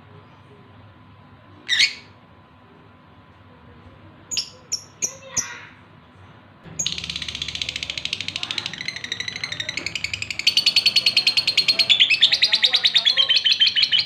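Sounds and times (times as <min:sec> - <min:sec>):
lovebird twittering chatter: 0:01.7 - 0:02.1, 0:06.8 - 0:14.0
lovebird chirps: 0:06.8 - 0:14.0.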